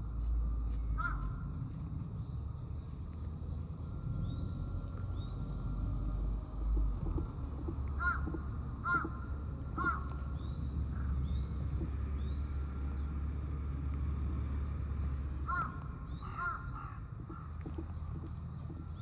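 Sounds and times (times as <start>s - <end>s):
steady low rumble: 0.0s - 19.0s
birds calling: 0.7s - 1.4s, 7.9s - 13.1s, 14.9s - 19.0s.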